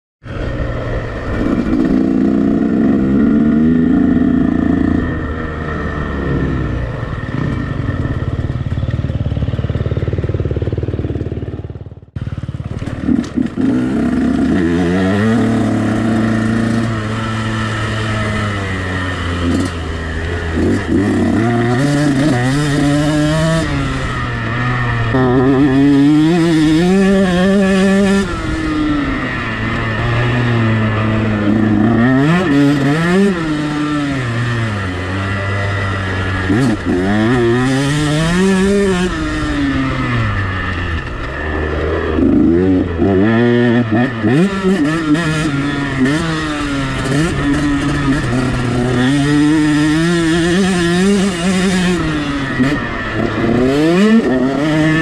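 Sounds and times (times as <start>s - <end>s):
two-stroke motocross engine revving: 0.3s - 55.0s.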